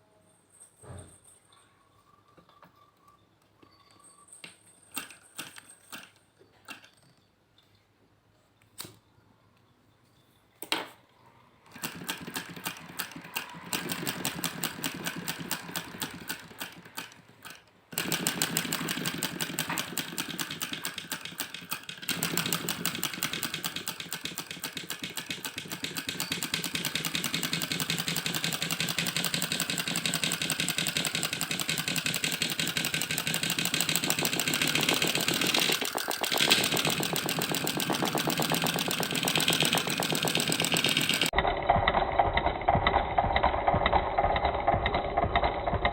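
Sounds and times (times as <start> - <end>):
small engine fast ticking: 11.7 - 45.9.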